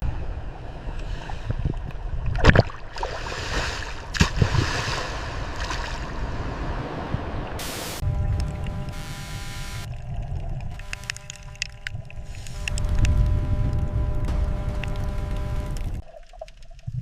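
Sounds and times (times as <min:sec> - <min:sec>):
ocean water rushing: 0:00.0 - 0:08.7
water splashes: 0:00.8 - 0:08.9, 0:09.9 - 0:17.0
low rumble: 0:04.0 - 0:17.0.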